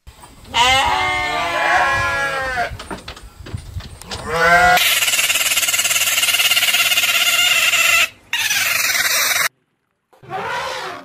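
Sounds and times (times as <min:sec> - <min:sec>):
capybara call falling tones: 0:04.6 - 0:09.5
capybara chattering: 0:04.8 - 0:09.5.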